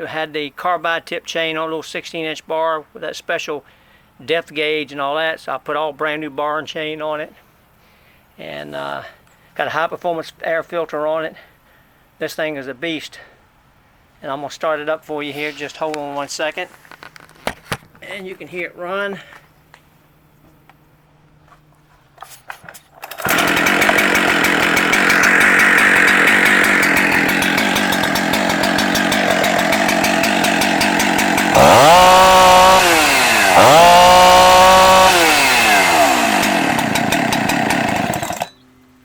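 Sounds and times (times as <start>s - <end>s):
chainsaw running and revving: 23.1s - 38.6s.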